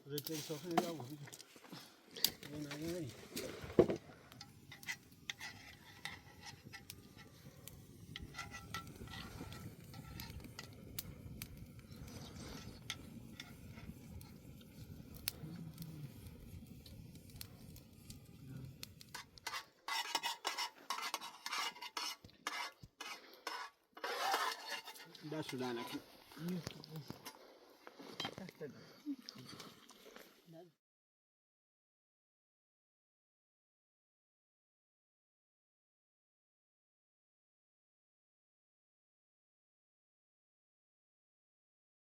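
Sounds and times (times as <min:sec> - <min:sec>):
utensils clinking on metal pots: 0:19.2 - 0:26.0.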